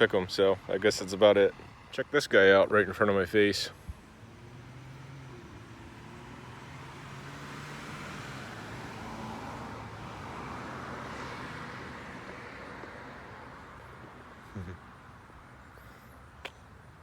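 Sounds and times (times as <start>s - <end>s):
car passing by: 0.0s - 14.5s.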